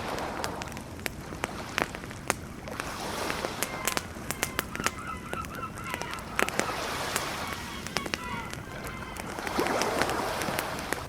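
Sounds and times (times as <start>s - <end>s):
campfire crackling and popping: 0.0s - 11.0s
ocean surf rushing: 0.0s - 11.0s
bird calling: 3.0s - 11.0s.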